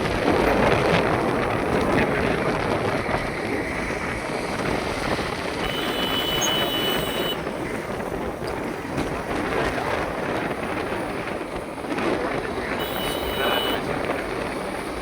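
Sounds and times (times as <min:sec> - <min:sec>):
faint high steady tone: 0:05.6 - 0:07.4, 0:12.8 - 0:13.8.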